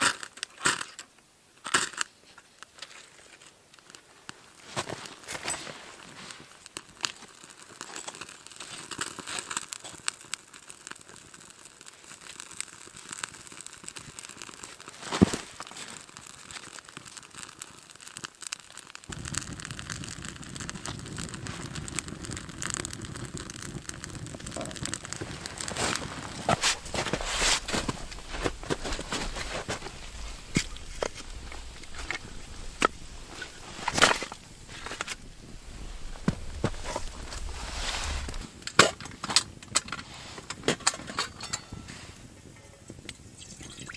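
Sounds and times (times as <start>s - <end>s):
twigs crinkling and snapping: 6.2s - 41.0s
loud crack: 24.8s - 39.2s.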